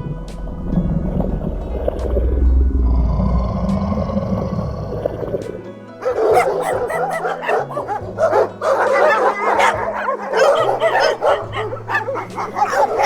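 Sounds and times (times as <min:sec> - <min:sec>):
low sound: 0:00.0 - 0:05.6
background music with bass line: 0:00.0 - 0:13.0
dogs yipping and barking: 0:06.0 - 0:13.0.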